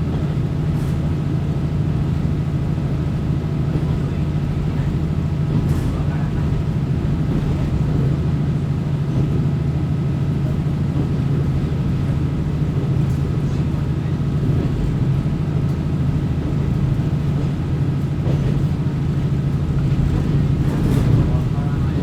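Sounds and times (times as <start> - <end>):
railcar engine drone: 0.0 - 22.0
train running noise: 0.0 - 22.0.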